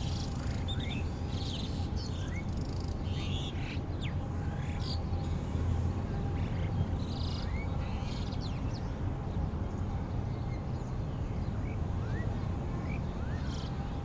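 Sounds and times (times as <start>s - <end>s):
birds chirping: 0.0s - 5.0s.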